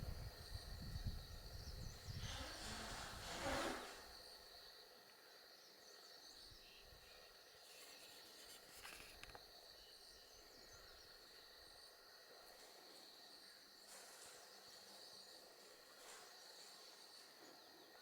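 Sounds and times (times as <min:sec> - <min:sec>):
high thin insect drone: 0:00.0 - 0:05.0, 0:05.8 - 0:18.0
brief rustle: 0:07.7 - 0:09.4
faint ticks: 0:07.7 - 0:09.5.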